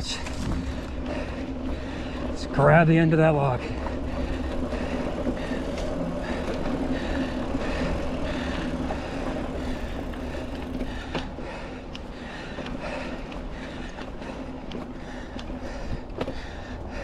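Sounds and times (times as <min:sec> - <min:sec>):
wind rumble on microphone: 0:00.0 - 0:02.6
bike tyres on dirt trail: 0:00.0 - 0:17.0
bike rattling clicks: 0:03.7 - 0:17.0.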